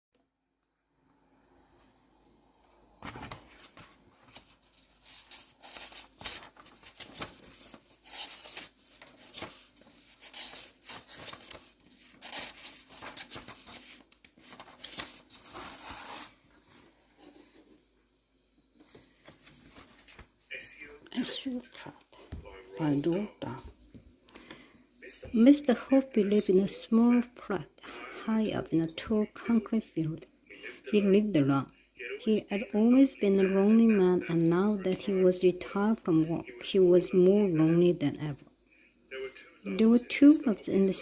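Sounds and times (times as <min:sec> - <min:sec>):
rustling handling noise: 0:02.7 - 0:17.9, 0:18.7 - 0:20.5.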